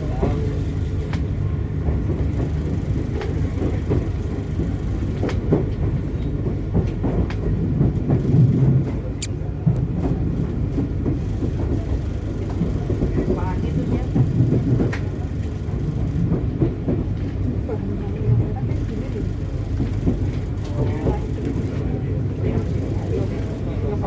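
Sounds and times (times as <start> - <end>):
train rumbling along track: 0.0 - 24.0
train wheels clicking and knocking: 0.0 - 24.0.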